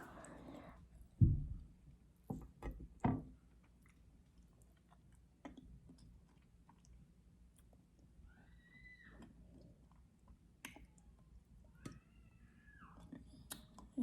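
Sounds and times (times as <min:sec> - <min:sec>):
low thump: 0:01.2 - 0:01.6
person chewing food: 0:03.5 - 0:08.2.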